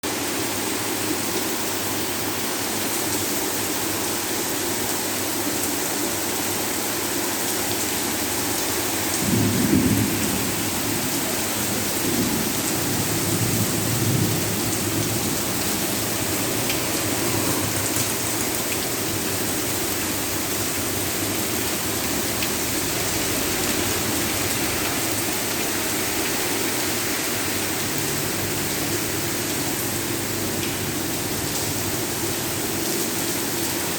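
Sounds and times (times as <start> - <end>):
heavy rain falling: 0.0 - 33.9
thunder rumbling: 9.0 - 19.3.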